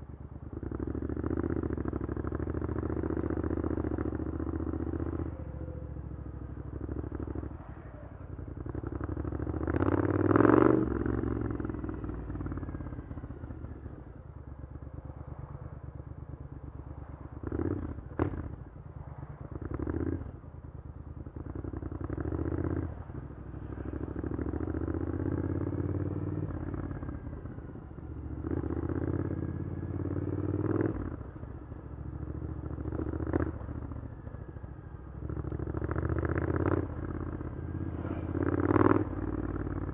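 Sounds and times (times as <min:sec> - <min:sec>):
motorcycle engine revving: 0:21.4 - 0:39.9.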